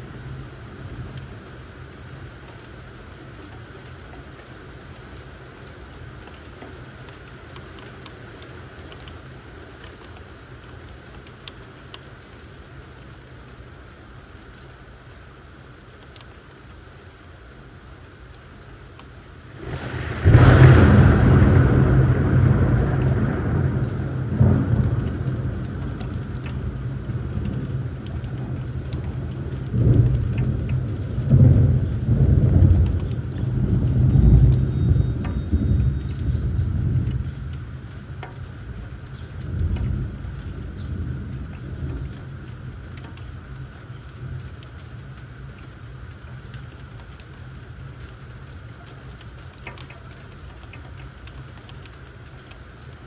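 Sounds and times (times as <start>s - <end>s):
steady rain falling: 0.0s - 53.0s
low steady rumble: 19.7s - 52.0s.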